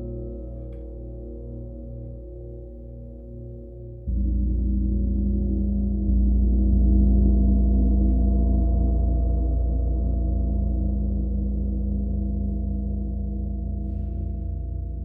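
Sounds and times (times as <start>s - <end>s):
low rumble: 4.1s - 15.0s.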